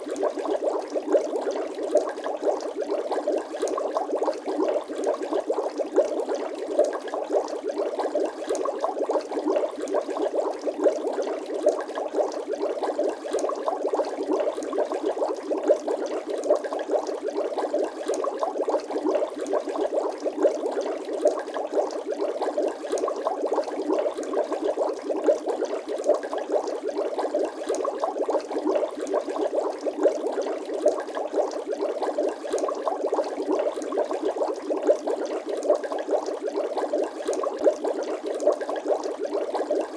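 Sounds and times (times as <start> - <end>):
water bubbling: 0.0 - 39.9.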